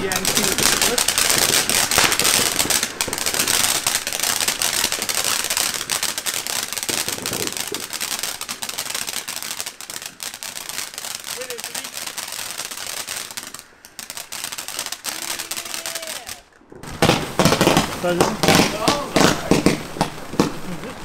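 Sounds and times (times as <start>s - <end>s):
firework hiss: 0.0s - 21.0s
ground firework crackling: 0.0s - 21.0s.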